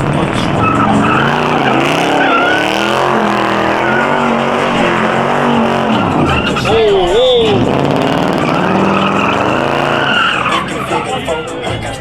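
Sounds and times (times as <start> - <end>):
car engine revving hard: 0.0 - 12.0
tires squealing: 0.0 - 12.0.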